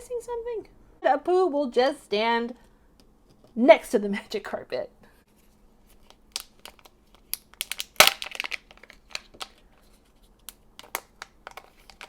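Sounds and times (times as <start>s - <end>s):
plastic and foil wrapper crinkling: 5.8s - 10.2s.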